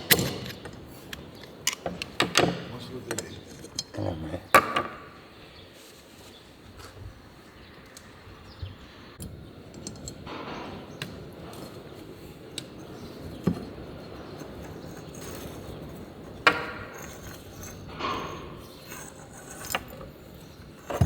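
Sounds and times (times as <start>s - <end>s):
metal parts clicking and tapping: 0.0s - 4.8s, 9.2s - 11.9s, 12.5s - 21.0s.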